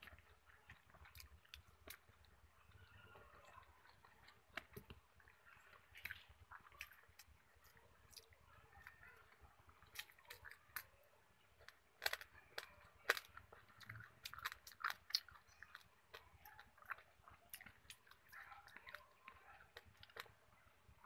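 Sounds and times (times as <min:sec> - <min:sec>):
chewing crispy fried food: 0:00.0 - 0:21.0
wet mouth clicks: 0:11.6 - 0:18.4.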